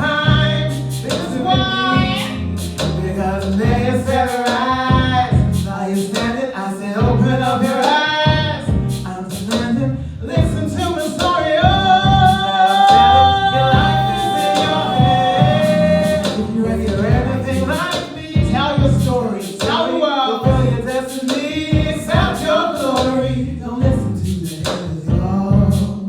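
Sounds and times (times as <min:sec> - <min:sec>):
bass and drums: 0:00.0 - 0:06.4, 0:07.0 - 0:19.3, 0:20.5 - 0:26.0
woman singing: 0:01.3 - 0:02.4, 0:11.2 - 0:17.7.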